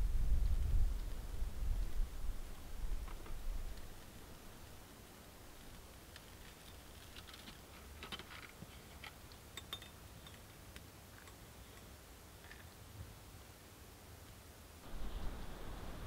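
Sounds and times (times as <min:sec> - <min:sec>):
low steady rumble: 0:00.0 - 0:04.8.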